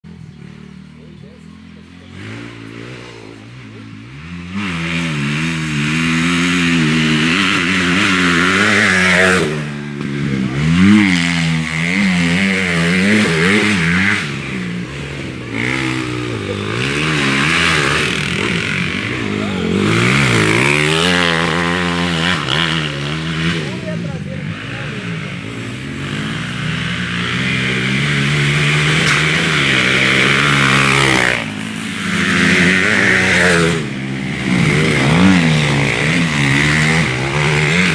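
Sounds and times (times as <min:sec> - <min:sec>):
motocross bike engine revving: 0:00.0 - 0:37.9.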